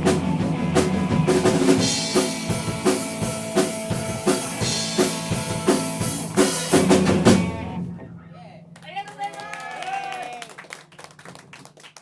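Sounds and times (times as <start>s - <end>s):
guitar and bass notes: 0.0s - 8.7s
drum kit beating: 0.0s - 9.0s.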